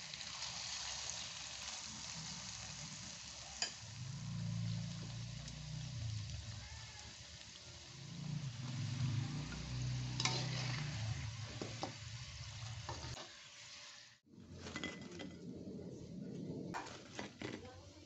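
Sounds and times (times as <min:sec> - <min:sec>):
fritters sizzling in hot oil: 0:00.0 - 0:14.8
metal utensil scraping a wok: 0:08.5 - 0:14.0.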